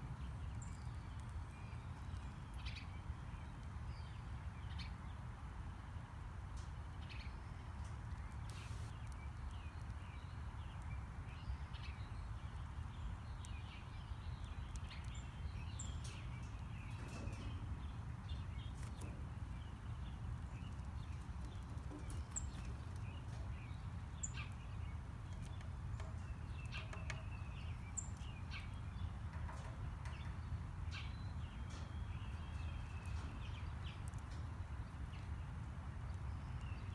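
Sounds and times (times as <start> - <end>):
small birds chirping: 0.0 - 36.9.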